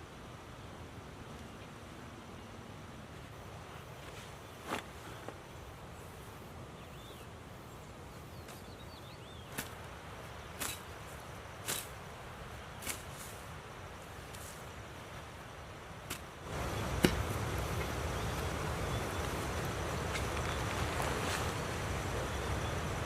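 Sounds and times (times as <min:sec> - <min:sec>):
river water rushing: 0:09.3 - 0:23.0
sharp knocks: 0:16.8 - 0:17.9.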